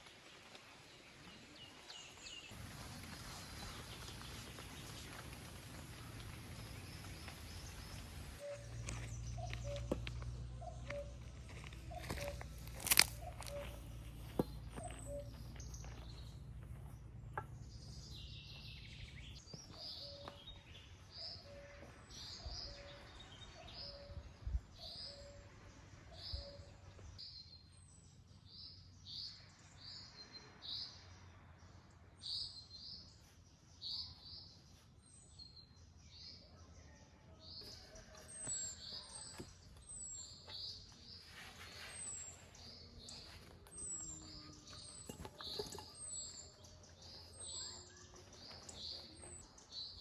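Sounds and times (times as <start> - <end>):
small bird chirping: 5.9 - 24.2, 37.6 - 50.0.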